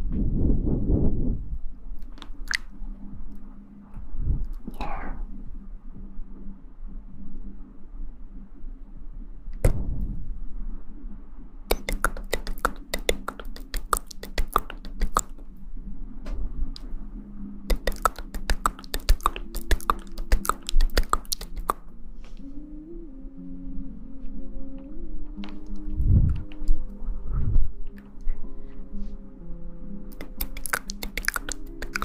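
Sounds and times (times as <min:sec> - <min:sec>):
low thump: 0:09.6 - 0:10.3
rapid sharp clicks: 0:11.7 - 0:15.3, 0:17.7 - 0:21.8.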